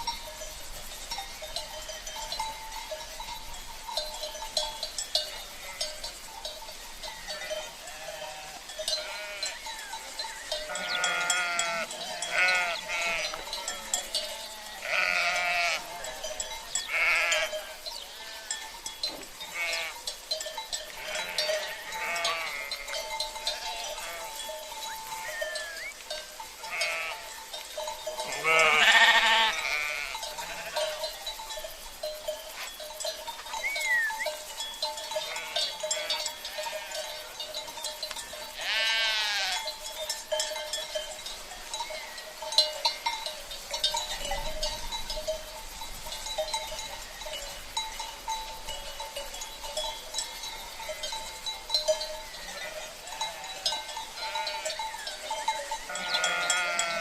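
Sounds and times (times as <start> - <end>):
livestock bells clinking: 0.0 - 57.0
sheep bleating: 5.4 - 6.0, 7.2 - 10.0, 10.6 - 18.6, 19.5 - 20.0, 21.0 - 26.0, 26.6 - 27.3, 28.2 - 31.0, 35.2 - 37.0, 38.6 - 39.7, 55.9 - 57.0.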